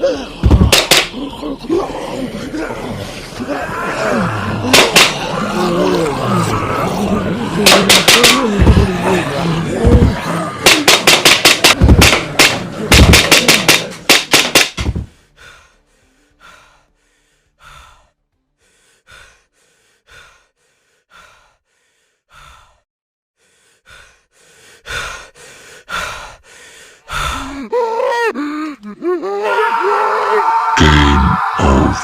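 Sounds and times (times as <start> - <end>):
music: 11.7 - 21.1.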